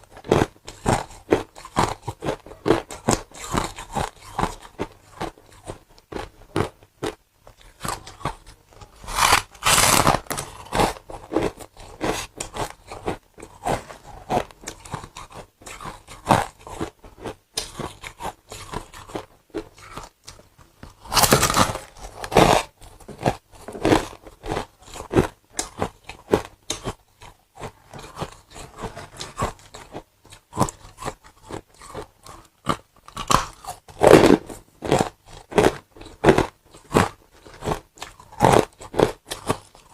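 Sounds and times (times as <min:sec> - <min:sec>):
person crunching ice: 0:00.2 - 0:20.1, 0:20.9 - 0:27.0.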